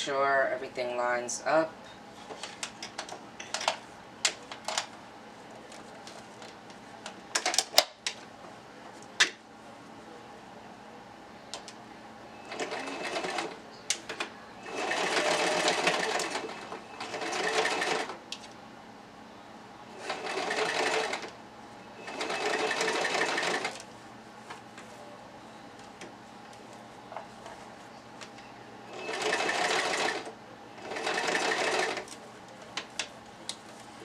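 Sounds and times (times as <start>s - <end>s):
sewing machine stitching: 12.5s - 13.6s, 14.6s - 18.1s, 20.0s - 21.3s, 22.0s - 23.8s, 28.9s - 32.1s.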